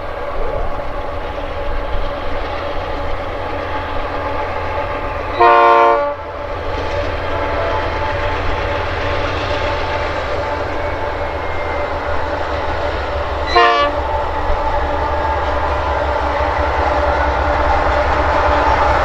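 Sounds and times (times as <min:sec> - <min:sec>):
freight train rumbling past: 0:00.0 - 0:19.0
train horn blast: 0:05.3 - 0:06.3, 0:07.2 - 0:09.0, 0:13.2 - 0:14.8.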